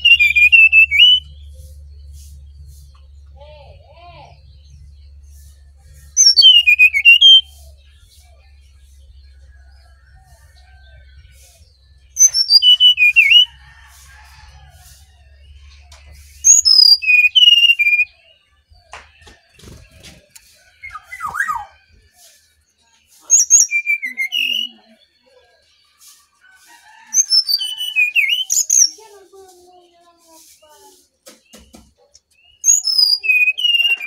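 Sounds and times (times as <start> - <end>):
bird singing: 0.0 - 29.1, 29.7 - 34.0.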